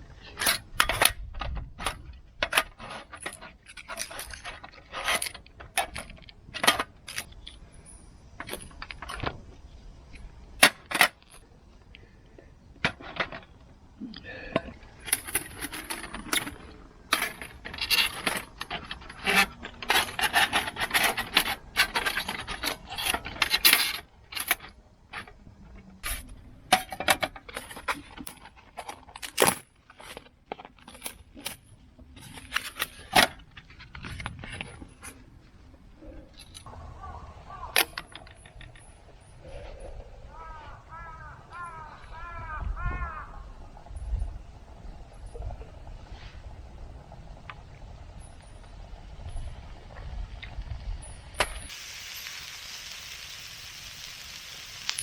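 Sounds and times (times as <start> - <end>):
small metal objects clinking: 51.0 - 55.0.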